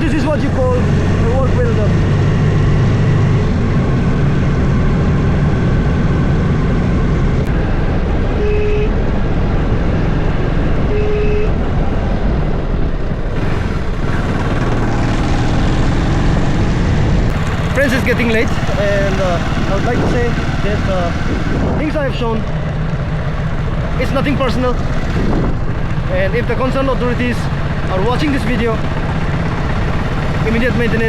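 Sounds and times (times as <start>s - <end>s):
vehicle rumbling on road: 0.0s - 31.0s
short horn beeps: 8.4s - 9.0s, 10.9s - 11.6s.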